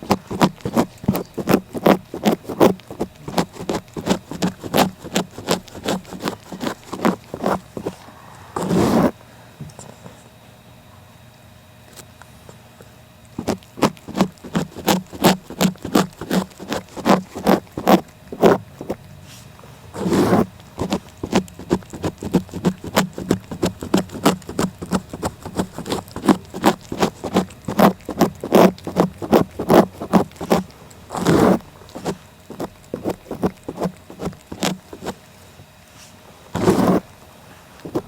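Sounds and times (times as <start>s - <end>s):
cat licking: 0.0s - 8.0s, 13.2s - 19.1s, 20.0s - 35.3s.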